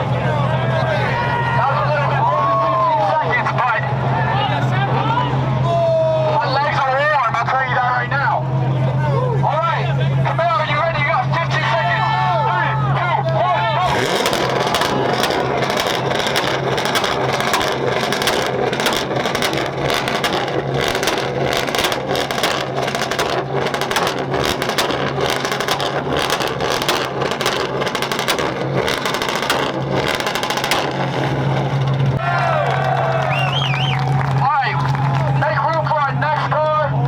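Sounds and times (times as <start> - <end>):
car engines running hard: 0.0 - 37.0
sharp crackling pops: 13.9 - 32.2.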